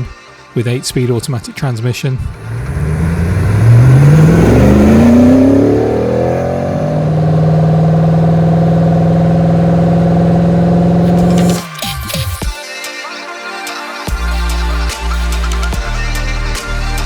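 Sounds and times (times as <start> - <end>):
car engine revving: 2.2 - 12.2.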